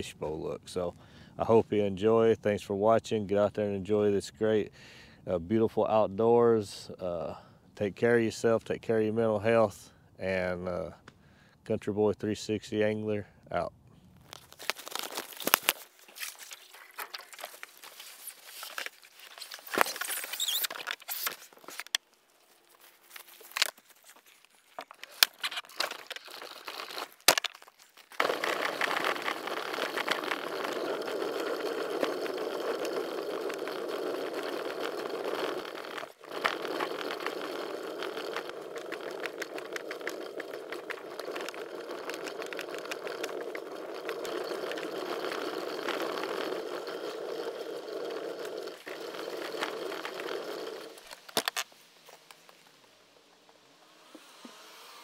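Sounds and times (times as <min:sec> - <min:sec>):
wheeled cart rolling over gravel: 0:14.2 - 0:52.6.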